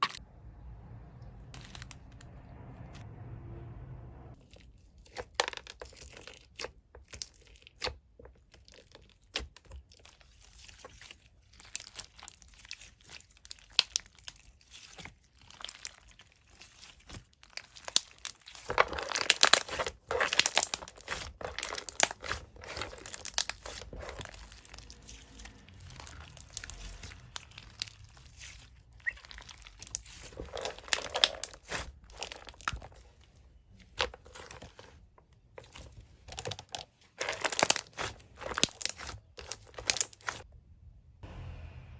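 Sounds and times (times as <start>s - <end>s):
slime squished by hand: 6.0s - 33.2s, 35.6s - 40.4s.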